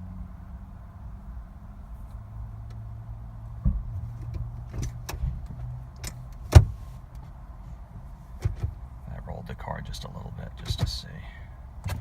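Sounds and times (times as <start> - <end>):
gear selector clicking and clunking: 3.6 - 7.4, 8.0 - 8.9, 10.5 - 11.2, 11.8 - 12.0.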